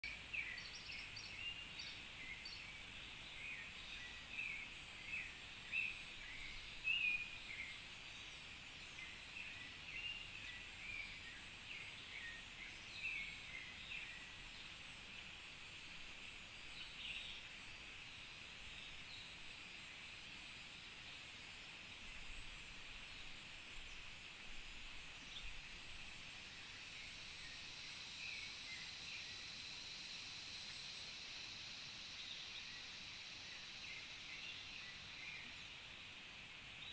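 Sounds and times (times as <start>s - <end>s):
high insect hum: 0.0s - 36.9s.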